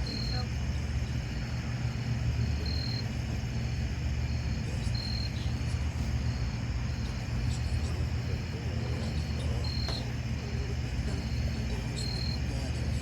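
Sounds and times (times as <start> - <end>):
insects chirping: 0.0 - 13.0
steady low hum: 0.0 - 13.0.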